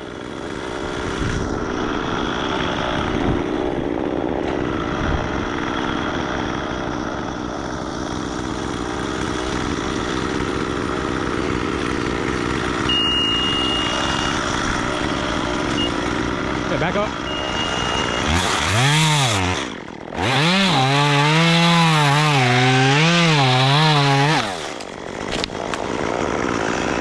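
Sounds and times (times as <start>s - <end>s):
engine running steadily: 0.0s - 18.8s
high steady tone: 12.9s - 14.5s, 17.2s - 18.4s.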